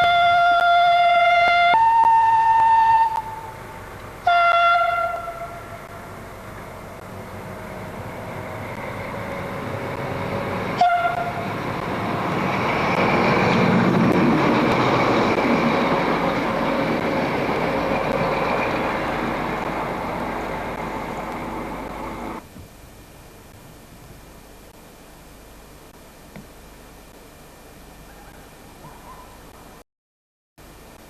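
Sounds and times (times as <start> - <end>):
train horn toot: 0.0 - 3.5, 4.2 - 5.9, 10.7 - 11.5
diesel train passing: 0.0 - 22.5.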